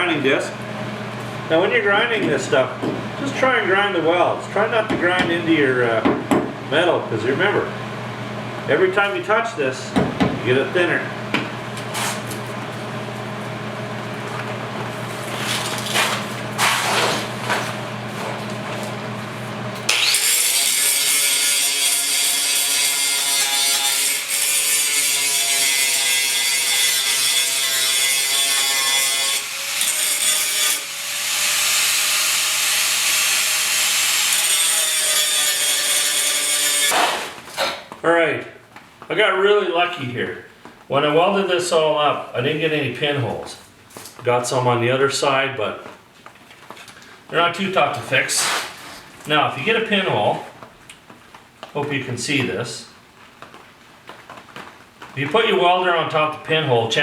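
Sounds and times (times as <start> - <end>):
grinder grinding steel: 19.9 - 37.4.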